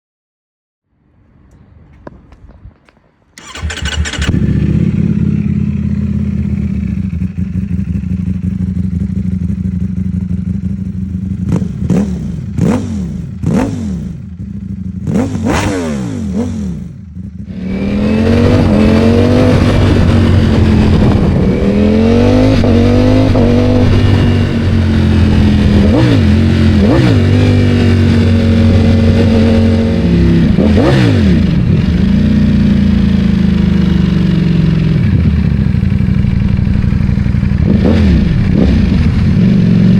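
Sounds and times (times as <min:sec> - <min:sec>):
motorcycle throttle blips: 0:01.4 - 0:15.7, 0:16.3 - 0:39.9
motorcycle engine idling: 0:03.4 - 0:13.5, 0:14.1 - 0:15.1, 0:16.8 - 0:17.5, 0:31.6 - 0:39.9
motorcycle engine revving: 0:03.4 - 0:39.9
motorcycle engine starting: 0:03.4 - 0:39.9.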